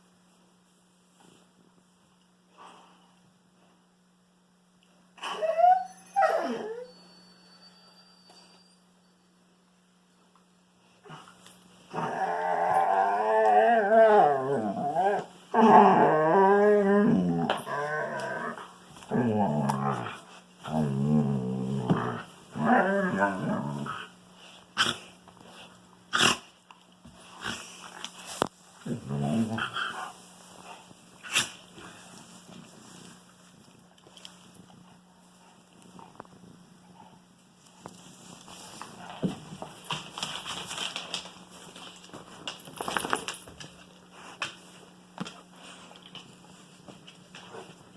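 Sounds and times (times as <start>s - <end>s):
dog wavering howl: 5.2s - 7.1s, 11.9s - 20.1s
dogs scuffling while playing: 37.8s - 47.9s.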